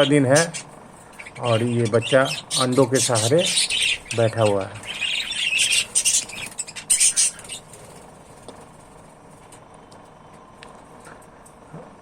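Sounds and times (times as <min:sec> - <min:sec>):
budgerigars squawking: 0:00.0 - 0:07.9
faint bird chatter: 0:00.0 - 0:09.6.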